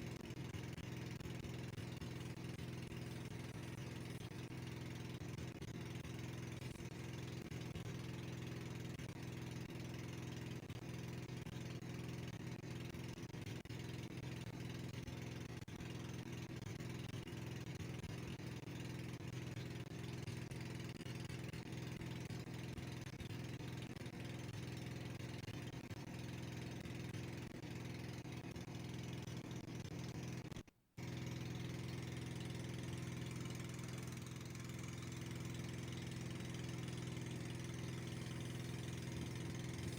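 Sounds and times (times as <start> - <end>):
boat engine droning: 0.0 - 8.7, 31.8 - 39.9.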